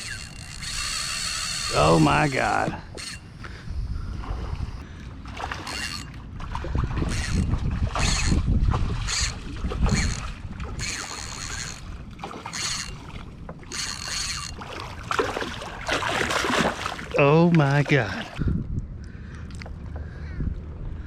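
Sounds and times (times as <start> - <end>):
wind on microphone: 1.7 - 4.9, 6.4 - 12.1, 18.1 - 21.0
low rumble of water: 3.8 - 13.7, 14.6 - 21.0.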